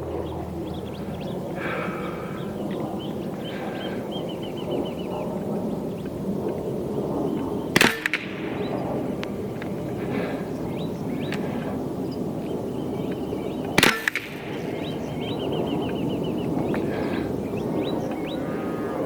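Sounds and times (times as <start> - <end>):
birds chirping faintly: 0.0 - 19.0
outdoor background noise: 0.0 - 19.0
air rifle shot: 7.7 - 9.5, 13.7 - 15.0.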